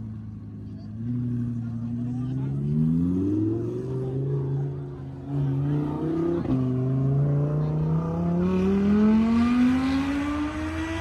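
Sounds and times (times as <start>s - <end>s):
car engine revving: 0.2s - 11.0s.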